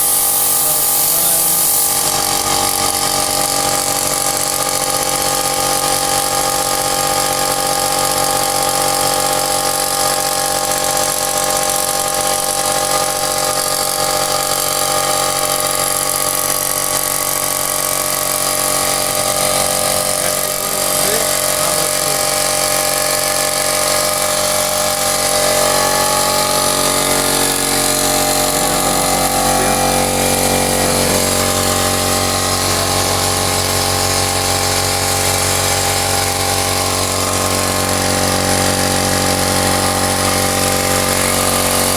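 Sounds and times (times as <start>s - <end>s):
compressor humming and hissing: 0.0s - 41.9s.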